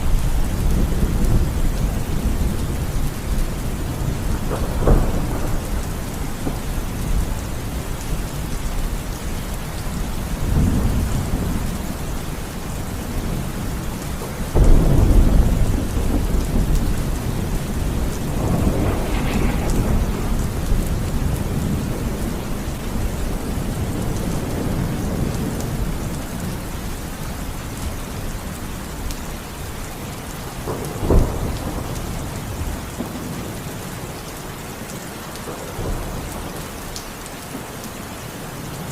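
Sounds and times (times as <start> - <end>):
loud thunderclap: 0.0 - 8.8, 12.8 - 26.4, 30.6 - 33.5
thunder rumbling: 0.0 - 29.7, 30.4 - 33.8
steady rain: 0.0 - 38.9.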